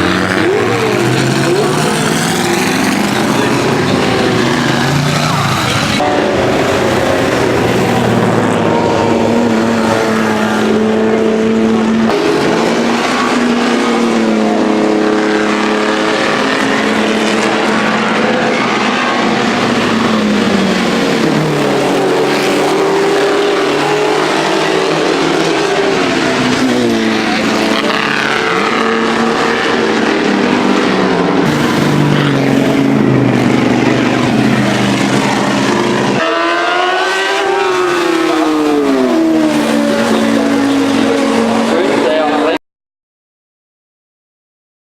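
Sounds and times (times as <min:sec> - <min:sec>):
engine climbing in pitch: 0:00.0 - 0:42.6
racing car engines revving: 0:00.0 - 0:42.6.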